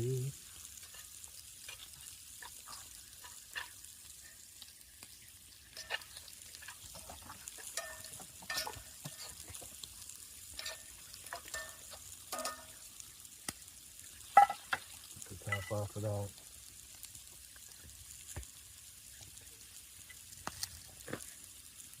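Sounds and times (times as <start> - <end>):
vegetables sizzling in a frying pan: 0.0 - 22.0
utensil scraping against pan: 5.7 - 9.7.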